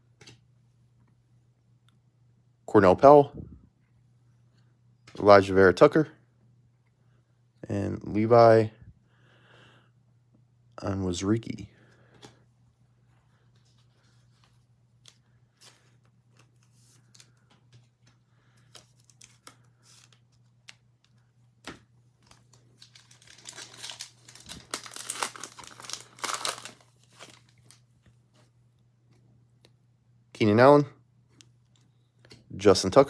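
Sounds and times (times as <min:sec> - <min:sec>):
foil wrapper tearing and crinkling: 0:22.4 - 0:27.8.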